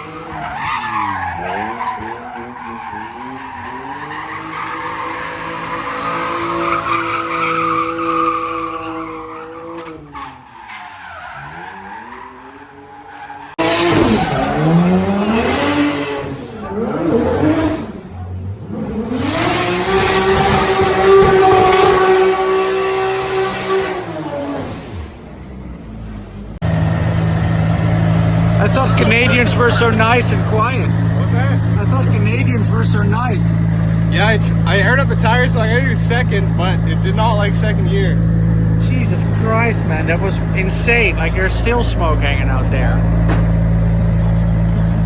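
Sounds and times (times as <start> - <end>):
tyres squealing: 0.0 - 26.6, 27.6 - 45.0
car engine revving: 0.0 - 45.0.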